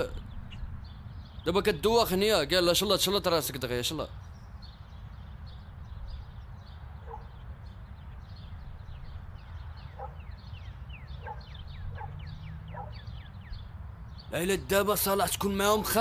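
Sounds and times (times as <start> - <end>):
birds chirping: 0.0 - 16.0
short lower bird calls: 4.1 - 14.4.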